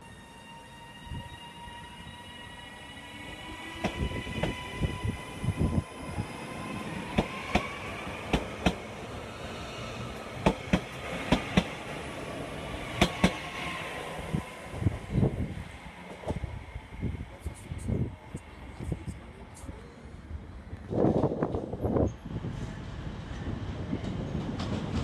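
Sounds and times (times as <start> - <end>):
train wheels clicking over rail joints: 10.4 - 11.8.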